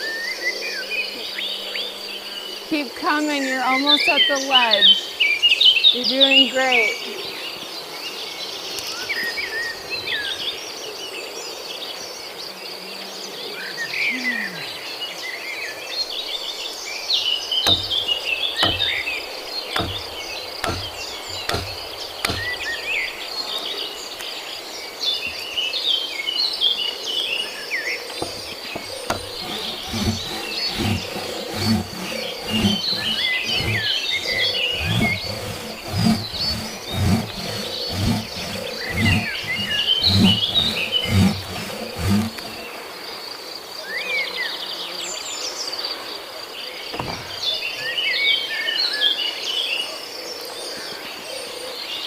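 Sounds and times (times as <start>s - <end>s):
birds chirping: 16.0s - 26.6s, 27.8s - 42.8s
knocks: 17.7s - 19.1s, 19.7s - 22.8s, 28.2s - 42.6s.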